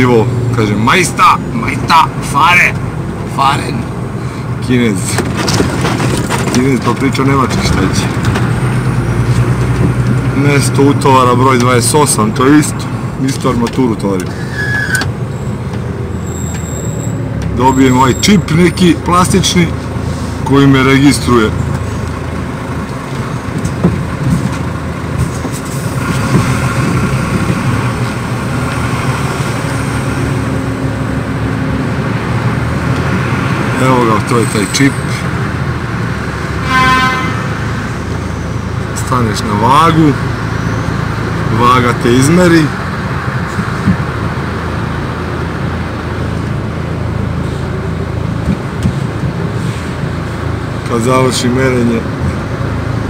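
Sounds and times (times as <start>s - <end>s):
sharp engine knocks: 5.1s - 7.0s.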